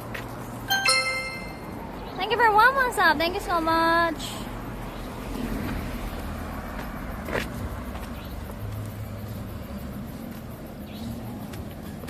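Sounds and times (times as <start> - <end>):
traffic rumbling: 0.0 - 12.0.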